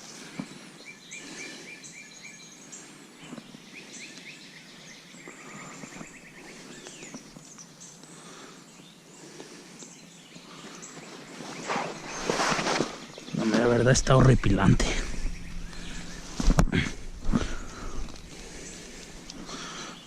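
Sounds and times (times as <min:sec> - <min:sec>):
birds singing trills: 0:00.0 - 0:20.0
outdoor background hiss: 0:00.0 - 0:20.0
high bird chirps: 0:14.9 - 0:20.0.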